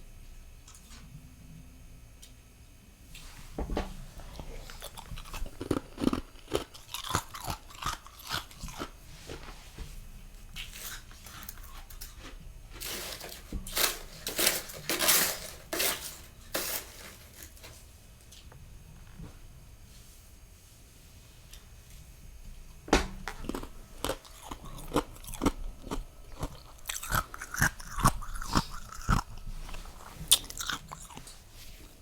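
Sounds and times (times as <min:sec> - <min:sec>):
crunching and chewing frost: 0:04.2 - 0:09.5, 0:10.5 - 0:12.1, 0:23.2 - 0:31.9.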